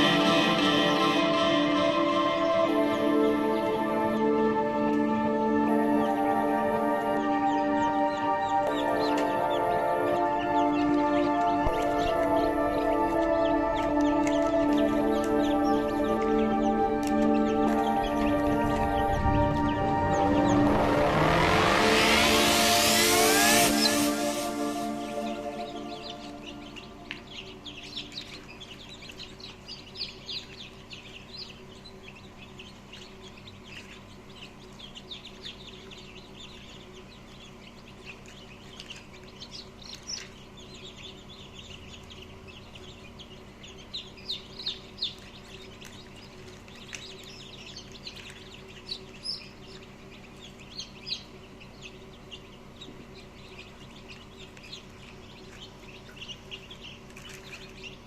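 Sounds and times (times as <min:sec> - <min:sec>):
steady low hum: 0:00.0 - 0:28.4
chicks peeping: 0:00.0 - 0:58.0.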